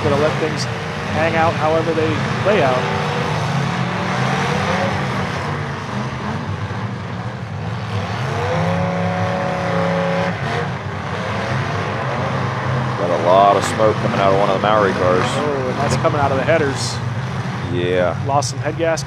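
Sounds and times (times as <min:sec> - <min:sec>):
car engines droning: 0:00.0 - 0:19.0
engine revving higher: 0:00.0 - 0:19.0.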